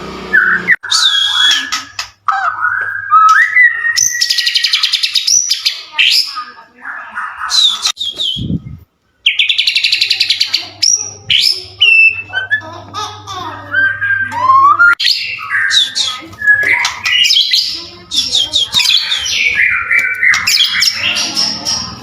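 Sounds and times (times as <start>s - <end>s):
bird singing whistled phrases: 0.3s - 6.4s, 7.4s - 8.6s, 10.8s - 12.6s, 13.8s - 21.4s
fast rattling bird trills: 15.0s - 22.0s.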